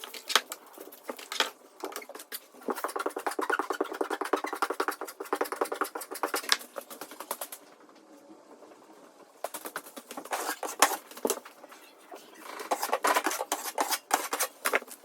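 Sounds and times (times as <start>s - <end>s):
tool scraping drywall: 1.9s - 6.9s, 9.5s - 11.4s, 12.5s - 15.0s
faint scratching: 9.5s - 15.0s.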